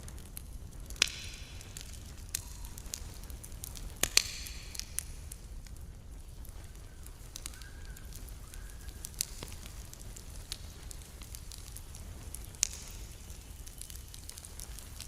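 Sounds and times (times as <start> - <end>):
campfire wood crackling: 0.0 - 15.0
sharp pops: 0.9 - 3.0, 4.0 - 5.1.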